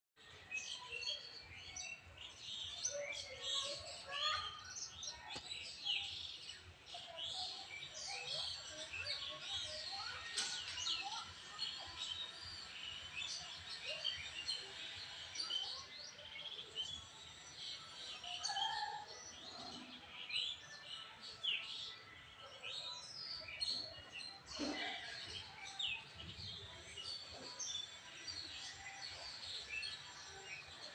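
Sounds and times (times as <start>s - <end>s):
small birds chirping: 0.2s - 30.9s.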